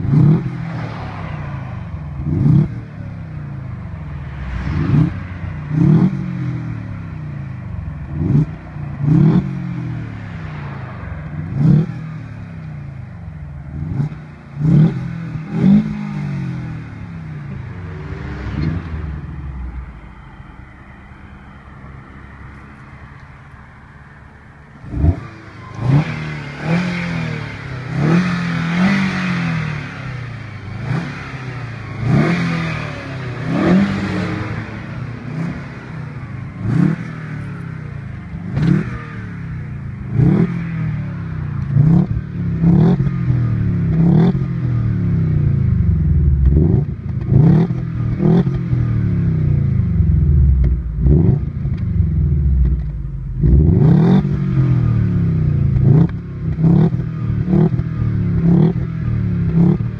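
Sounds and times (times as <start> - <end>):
engine revving throttle blips: 24.4 - 59.9.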